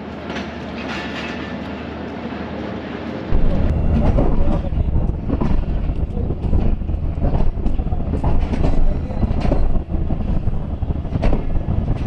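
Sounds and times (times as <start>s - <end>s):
train low rumble: 0.0s - 12.0s
train wheels clacking: 3.4s - 12.0s.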